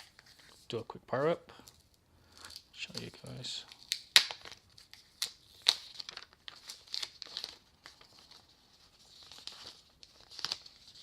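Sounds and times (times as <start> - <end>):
plastic packaging crinkling: 1.7 - 11.0.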